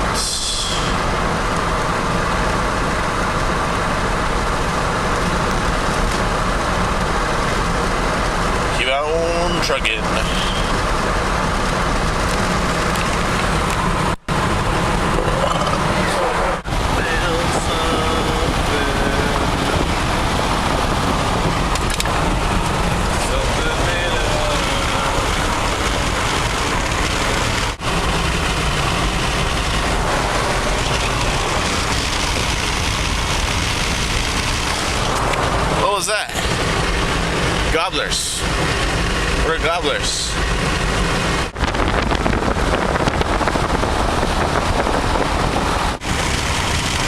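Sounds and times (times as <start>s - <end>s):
engine rumble inside car: 0.0s - 47.0s
tyre and wind noise: 40.4s - 47.0s.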